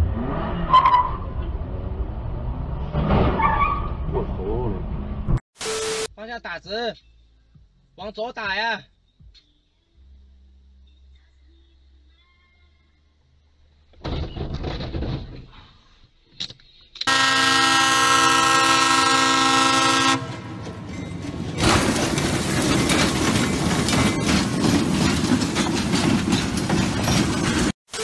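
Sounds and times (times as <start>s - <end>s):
train horn blasting: 17.1s - 20.9s
train rumbling past: 17.1s - 27.8s
rapid knocking of train wheels: 20.6s - 27.7s.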